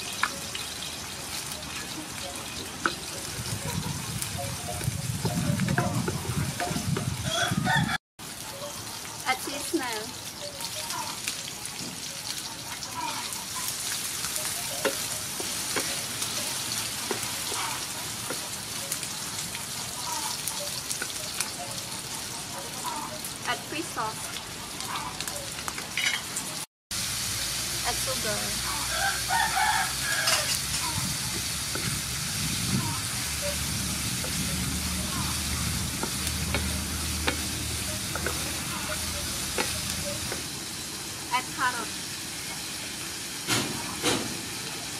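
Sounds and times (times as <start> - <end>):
food sizzling in oil: 0.0 - 44.9
wooden spatula knocking on pan: 36.0 - 40.4.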